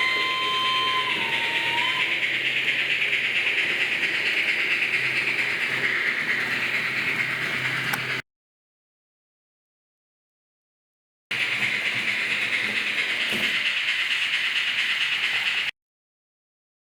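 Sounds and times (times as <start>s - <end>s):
model train whistle: 0.0s - 2.2s
model train running hiss: 0.0s - 8.2s, 11.3s - 15.7s.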